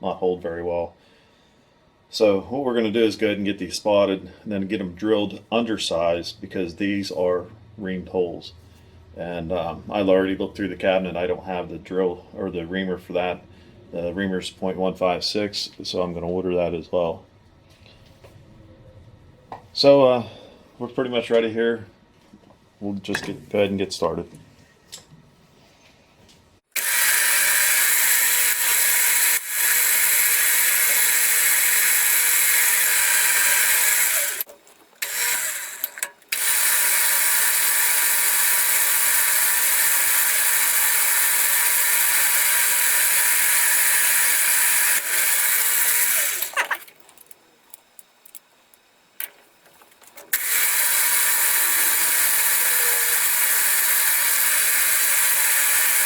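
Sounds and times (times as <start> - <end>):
milling machine spindle humming: 26.8 - 48.8, 50.3 - 56.0.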